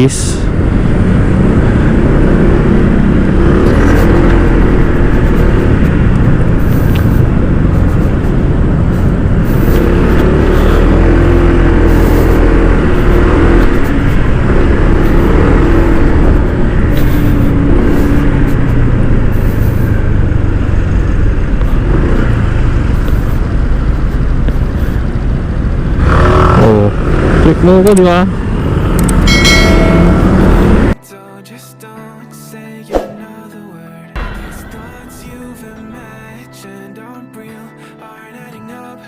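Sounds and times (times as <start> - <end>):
wind rumble on microphone: 0.4 - 27.4
scooter engine running: 2.8 - 27.2.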